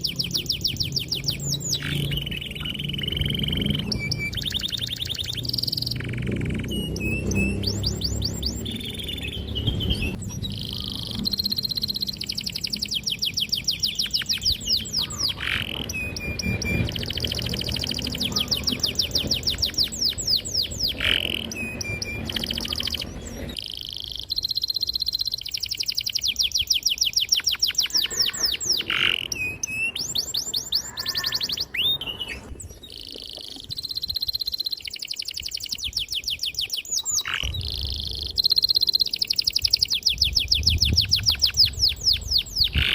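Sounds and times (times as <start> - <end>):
canary singing trills: 0.0 - 42.9
low background rumble: 37.4 - 42.9.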